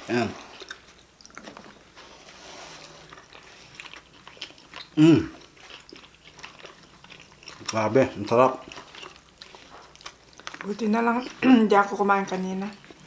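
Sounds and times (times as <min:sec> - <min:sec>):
people chewing: 0:00.0 - 0:13.0
short falling vocal sound: 0:05.0 - 0:05.3.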